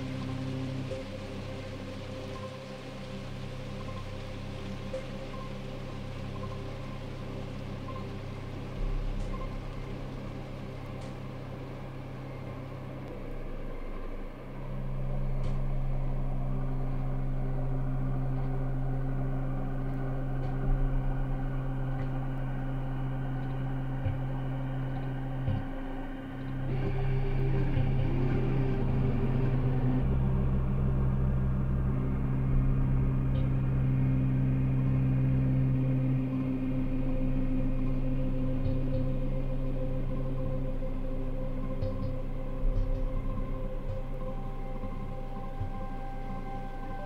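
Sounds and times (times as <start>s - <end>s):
rain-like hiss: 0.0s - 33.8s
ambient synthesizer drone: 0.0s - 47.0s
low pulsing swells: 0.0s - 47.0s.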